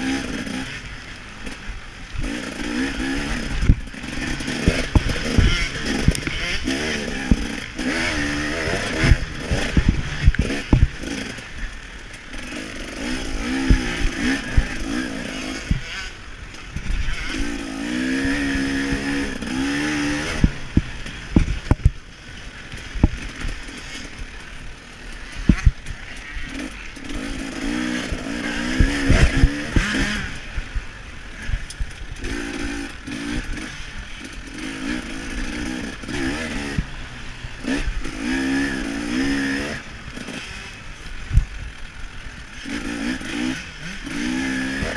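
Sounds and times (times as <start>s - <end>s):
two-stroke engine revving: 0.0s - 44.9s.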